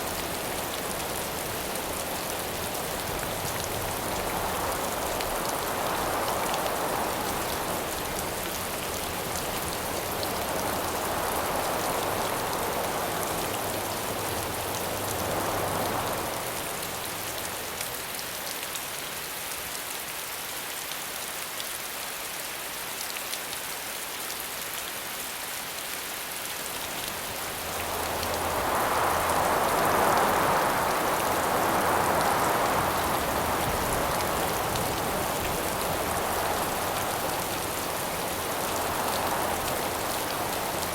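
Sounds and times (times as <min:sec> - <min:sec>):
wind gusts: 0:00.0 - 0:18.2, 0:26.4 - 0:40.9
rain hiss: 0:00.0 - 0:40.9.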